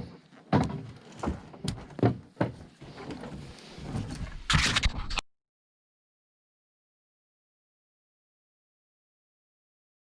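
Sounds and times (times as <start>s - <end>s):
hard thumps and knocks: 0.5s - 4.0s.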